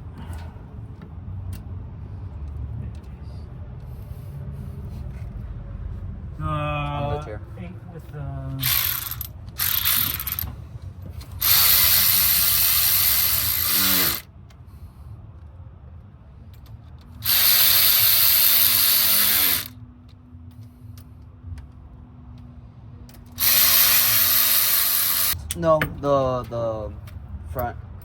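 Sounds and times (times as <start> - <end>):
cordless ratchet whirring: 8.6 - 10.6, 11.3 - 14.3, 17.2 - 19.8, 23.3 - 25.4.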